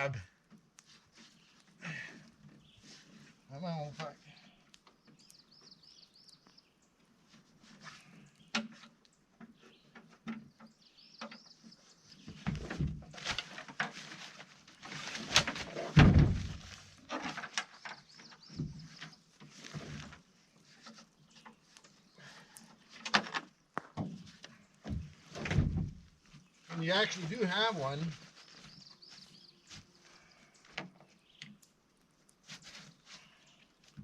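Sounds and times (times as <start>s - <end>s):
fabric and straps rustling: 11.7s - 23.4s, 24.2s - 30.7s.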